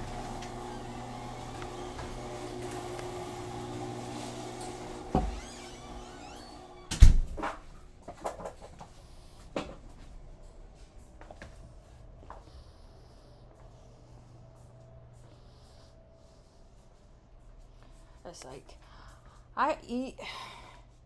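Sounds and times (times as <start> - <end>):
steady hum: 0.0 - 8.1.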